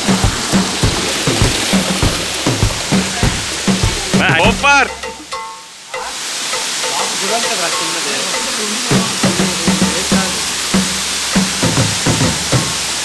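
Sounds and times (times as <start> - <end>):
funky background music: 0.0 - 5.2, 8.9 - 13.0
waterfall rushing: 0.0 - 13.0.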